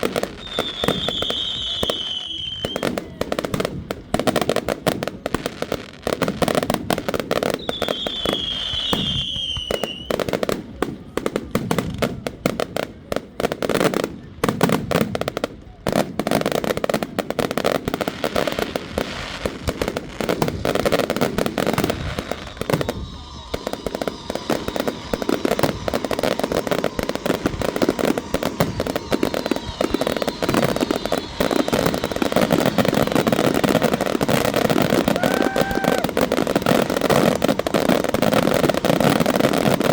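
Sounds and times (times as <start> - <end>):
firework whistle falling: 0.0 - 3.7, 6.5 - 10.4, 18.2 - 39.9
fireworks crackling and banging: 0.0 - 39.9.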